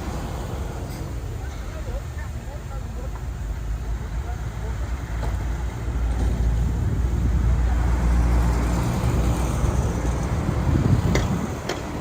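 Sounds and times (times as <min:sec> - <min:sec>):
diesel engine rumbling: 0:00.0 - 0:12.0
sharp clacks: 0:11.1 - 0:12.0.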